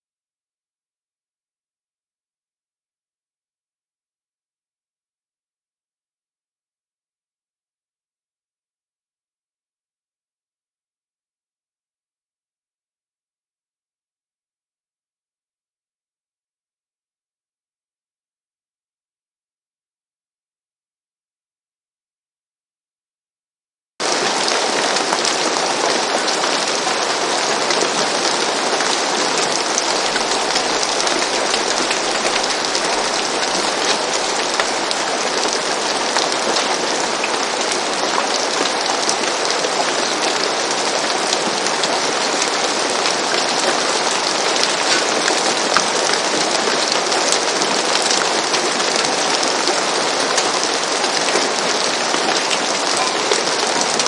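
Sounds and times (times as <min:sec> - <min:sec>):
gentle rain on roof: 0:24.0 - 0:54.0.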